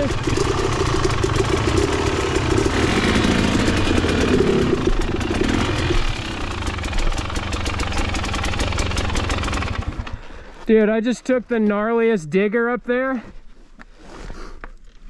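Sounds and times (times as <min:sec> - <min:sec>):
dirt bike engine idling: 0:00.0 - 0:10.6.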